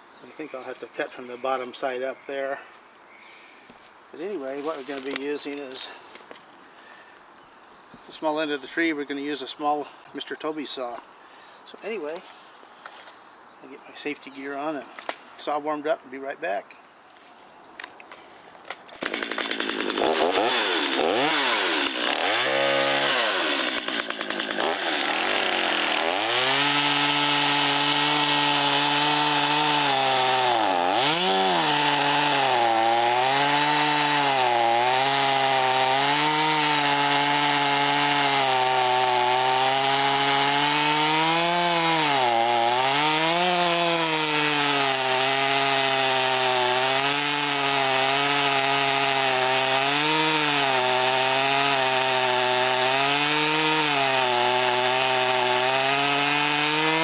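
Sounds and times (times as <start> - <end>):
chainsaw cutting through wood: 18.7 - 57.0
chainsaw revving: 19.0 - 57.0.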